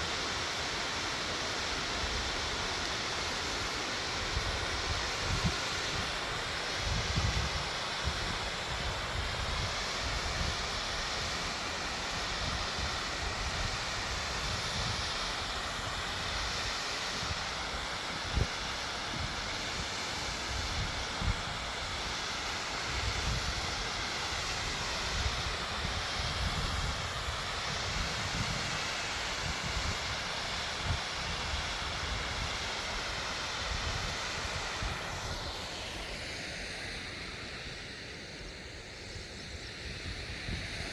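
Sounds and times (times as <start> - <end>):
waterfall rushing: 0.0 - 38.4.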